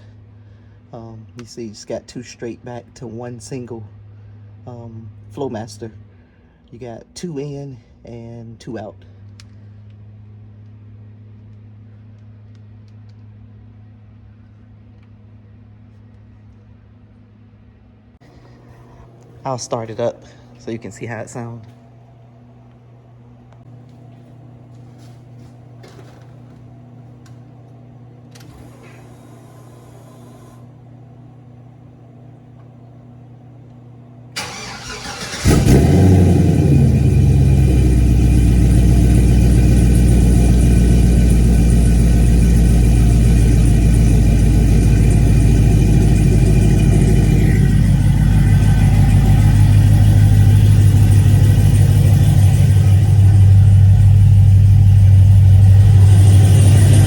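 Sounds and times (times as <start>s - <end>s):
car engine starter cranking: 28.3s - 30.6s, 34.4s - 38.2s, 44.6s - 57.0s
car engine idling loudly: 34.4s - 57.0s.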